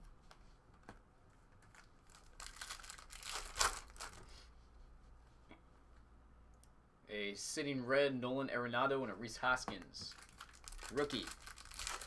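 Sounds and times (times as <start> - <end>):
wrapper tearing and crinkling: 1.6 - 4.2, 10.1 - 12.0.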